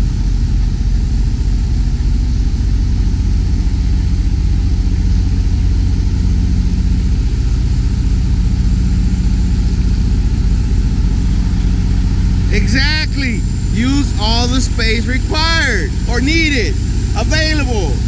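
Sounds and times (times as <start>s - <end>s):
diesel engine droning: 12.2s - 18.0s.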